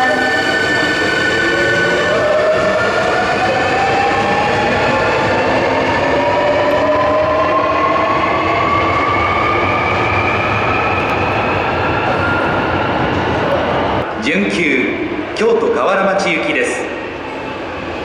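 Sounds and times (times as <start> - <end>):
subway train motor whine: 0.0 - 14.2
train wheel and track noise: 0.0 - 18.0.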